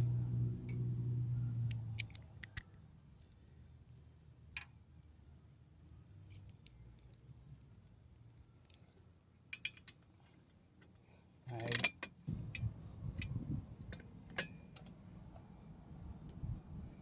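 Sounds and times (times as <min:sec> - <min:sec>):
metal clinks and clunks: 0:09.5 - 0:10.0, 0:11.5 - 0:13.3
low rumbling handling noise: 0:12.2 - 0:14.6.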